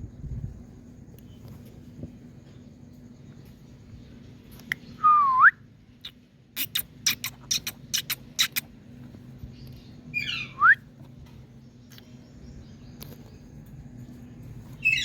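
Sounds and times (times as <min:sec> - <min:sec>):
parrot clicking chirps: 0:06.0 - 0:08.7
parrot harsh call with whistle: 0:10.2 - 0:10.8.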